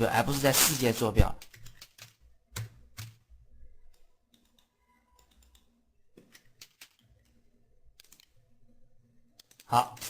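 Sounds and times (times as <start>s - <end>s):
mouse and keyboard clicks: 8.0s - 8.4s.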